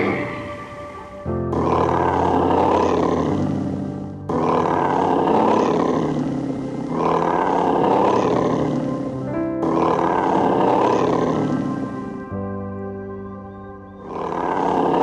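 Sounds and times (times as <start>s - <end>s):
large animal roaring: 0.0s - 12.2s, 14.0s - 15.0s
background music low notes: 0.0s - 15.0s.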